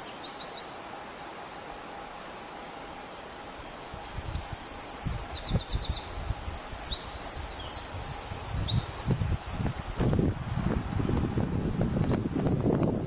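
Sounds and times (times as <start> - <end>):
songbird chirping and trilling: 0.0 - 0.9, 3.7 - 13.0
steady hiss: 0.0 - 13.0.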